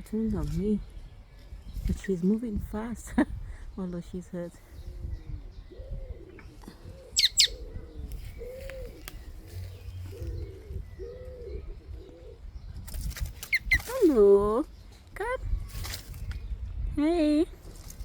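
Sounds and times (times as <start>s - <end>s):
bird cooing: 4.8s - 12.8s
bird double chirp: 7.1s - 7.7s.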